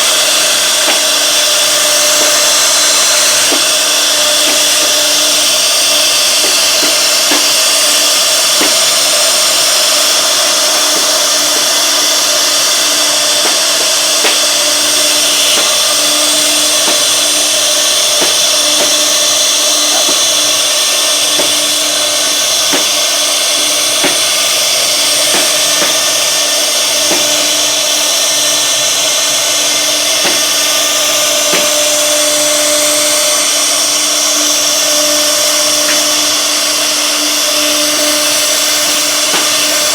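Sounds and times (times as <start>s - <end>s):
router spindle cutting wood: 0.0s - 39.9s.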